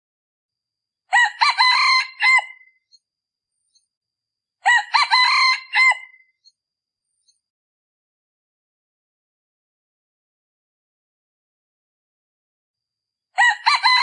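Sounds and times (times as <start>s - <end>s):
rooster crowing: 1.1s - 2.7s, 4.6s - 6.2s, 13.4s - 14.0s.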